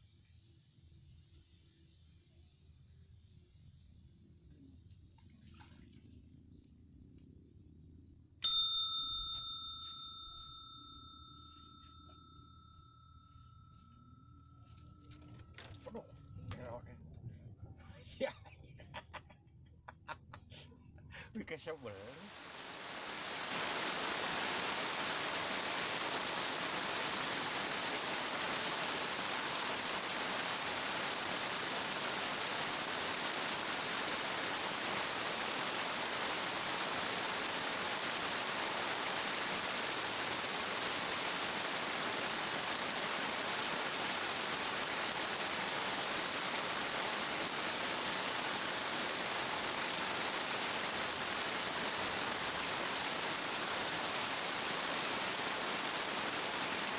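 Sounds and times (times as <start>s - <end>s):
steady rushing hiss: 21.4s - 56.9s.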